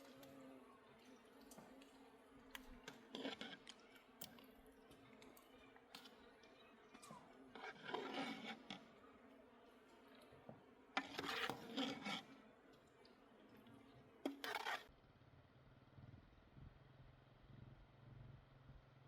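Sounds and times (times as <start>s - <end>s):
light scrapes of small objects: 0.0s - 6.3s, 6.9s - 9.1s, 9.9s - 14.9s
faint clicks: 0.0s - 7.7s
rustling scrape: 7.6s - 8.9s, 11.0s - 12.3s, 14.2s - 14.9s.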